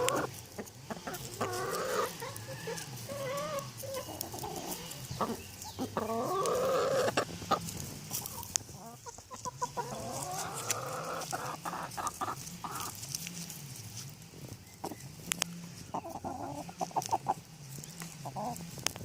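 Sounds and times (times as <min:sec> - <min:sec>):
rooster food calls: 0:00.0 - 0:18.8
hens clucking: 0:00.0 - 0:19.0.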